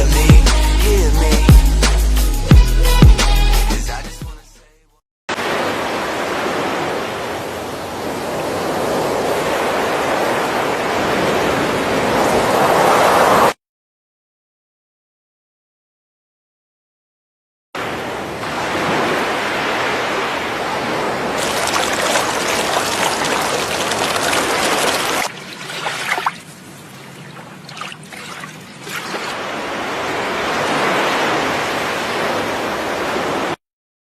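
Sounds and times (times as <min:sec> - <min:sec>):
waterfall roaring: 0:17.9 - 0:26.3.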